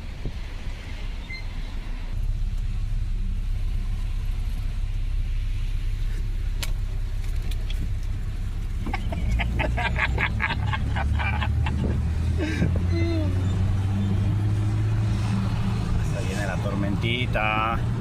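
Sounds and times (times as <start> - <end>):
wind buffeting microphone: 11.2 - 15.1.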